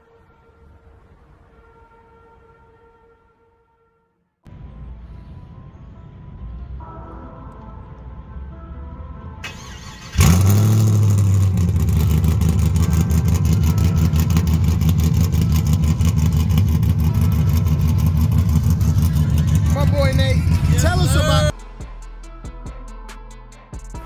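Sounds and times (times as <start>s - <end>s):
engine starting: 9.4s - 12.7s
choppy engine idle: 10.2s - 21.5s.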